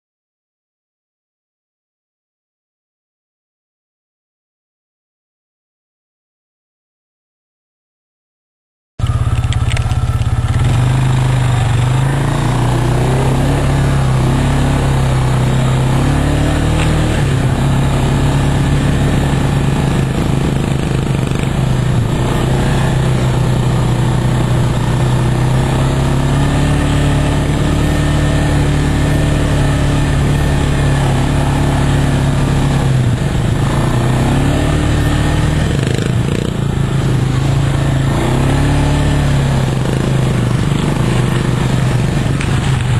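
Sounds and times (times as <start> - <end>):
off-road vehicle engine: 9.0 - 42.9
rough road noise: 9.0 - 42.9
wind noise: 11.0 - 42.9.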